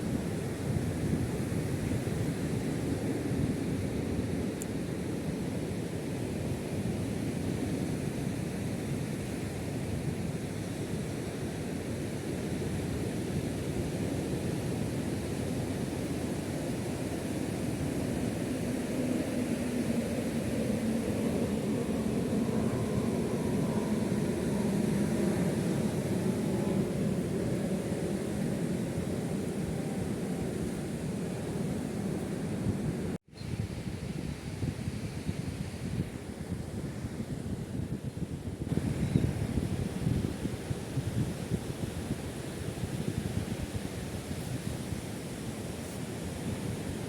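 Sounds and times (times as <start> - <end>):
faint engine drone: 16.4 - 33.5.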